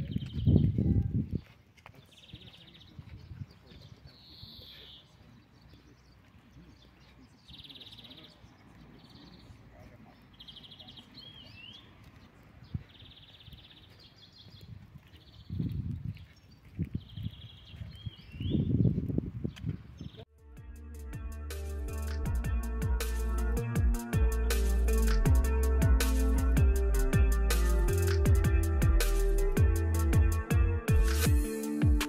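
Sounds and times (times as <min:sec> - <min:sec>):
small birds chirping in trills: 0:00.0 - 0:20.3.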